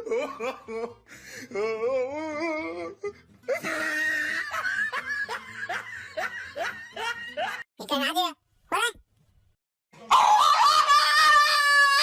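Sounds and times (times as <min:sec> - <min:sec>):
people laughing: 0:03.6 - 0:07.7.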